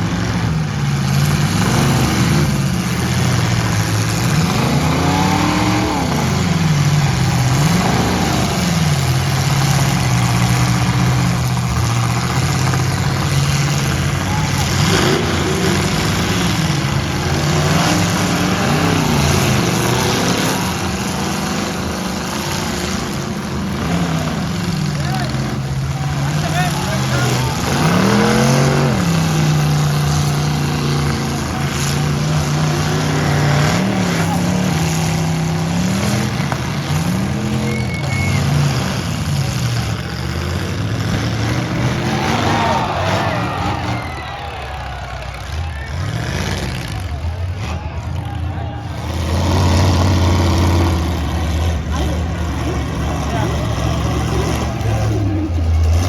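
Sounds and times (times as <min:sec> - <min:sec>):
pickup truck engines revving: 0:00.0 - 0:56.0.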